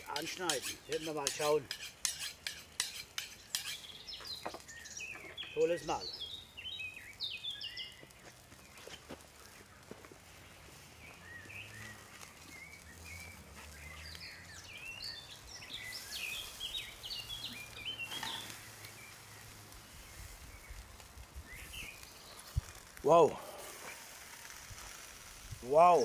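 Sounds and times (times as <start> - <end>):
birds chirping: 0.0 - 24.5, 25.7 - 26.0.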